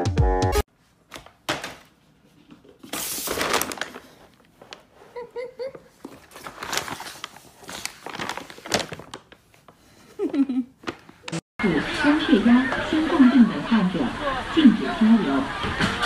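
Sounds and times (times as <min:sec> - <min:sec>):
bag crinkling and rustling: 0:02.9 - 0:05.0, 0:05.9 - 0:09.8.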